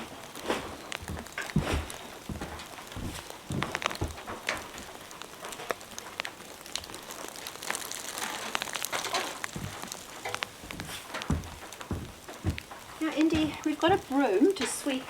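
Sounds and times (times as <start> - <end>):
heavy rain on a roof: 0.0 - 15.0
water drips ticking: 0.0 - 15.0
dull knock: 10.7 - 14.1.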